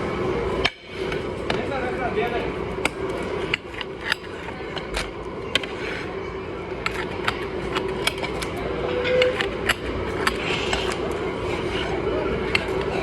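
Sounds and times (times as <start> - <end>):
steady hum: 0.0 - 13.0
sharp clicks and knocks: 6.8 - 11.0.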